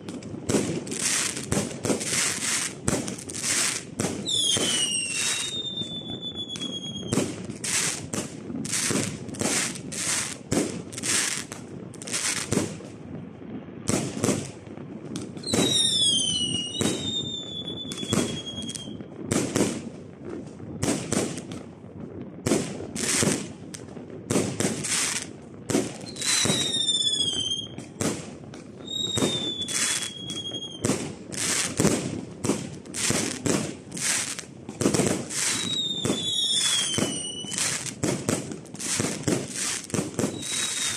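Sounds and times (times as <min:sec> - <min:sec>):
whistling firework shells: 0:00.0 - 0:10.4, 0:15.2 - 0:19.7, 0:24.4 - 0:28.2, 0:28.8 - 0:40.9
fireworks bangs and crackles: 0:00.0 - 0:40.9.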